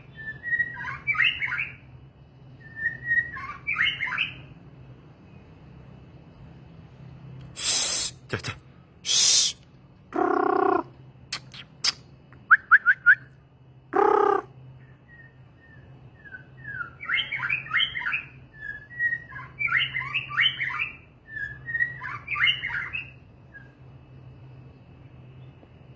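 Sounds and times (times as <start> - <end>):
songbird calling and singing: 0.0 - 4.7, 14.0 - 25.7.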